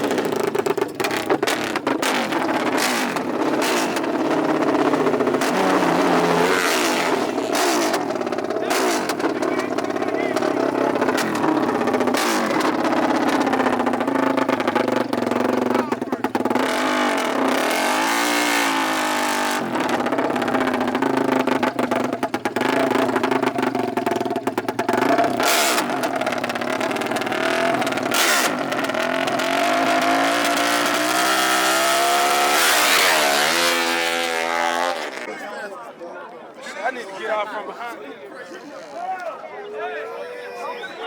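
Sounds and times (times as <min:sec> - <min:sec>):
racing engines revving: 0:00.0 - 0:35.3.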